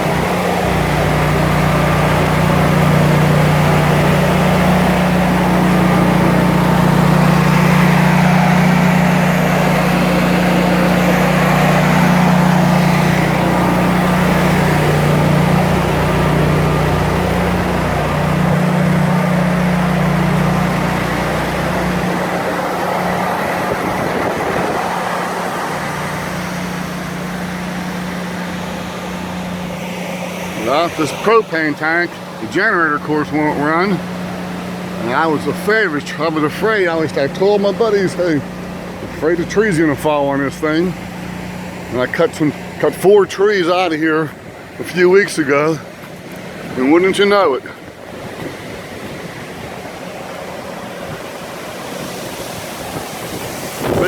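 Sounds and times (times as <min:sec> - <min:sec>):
generator engine humming: 0:00.0 - 0:54.0.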